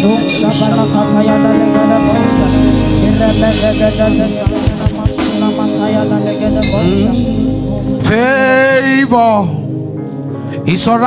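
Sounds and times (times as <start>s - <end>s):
band playing sustained chords: 0.0s - 10.5s
deep bass line: 0.6s - 9.8s
low drum hits: 1.8s - 8.2s.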